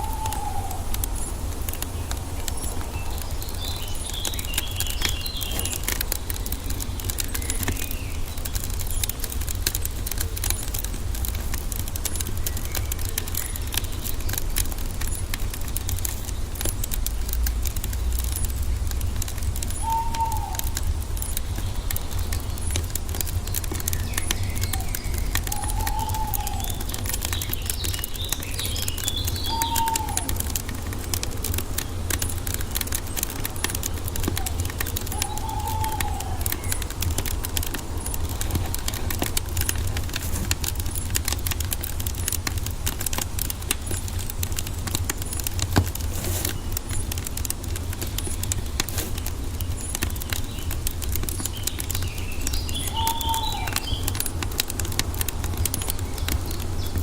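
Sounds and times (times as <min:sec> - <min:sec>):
bird calling: 0:00.0 - 0:42.2, 0:45.1 - 0:57.0
wood fire crackling: 0:00.0 - 0:57.0
high bird chirps: 0:19.7 - 0:30.5, 0:34.3 - 0:38.5, 0:51.5 - 0:54.3.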